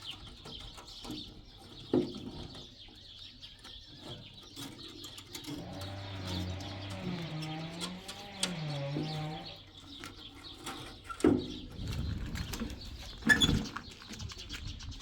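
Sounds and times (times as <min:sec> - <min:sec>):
low cooing bird calls: 0:03.9 - 0:15.0.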